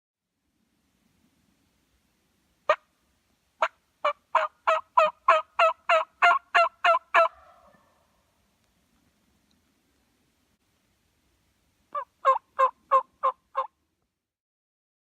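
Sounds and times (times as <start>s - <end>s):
turkey yelping: 3.6s - 8.0s, 11.9s - 13.7s.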